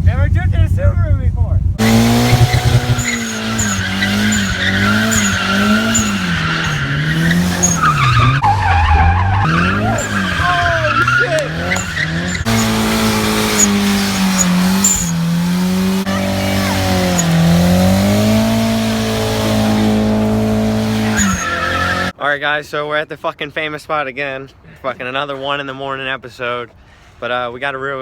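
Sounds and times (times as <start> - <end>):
car engine revving: 0.0 - 22.2
tyres squealing: 1.8 - 22.2.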